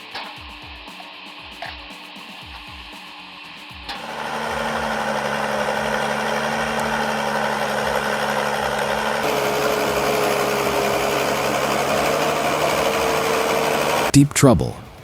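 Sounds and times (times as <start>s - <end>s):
heavy machine engine running: 3.9s - 14.1s.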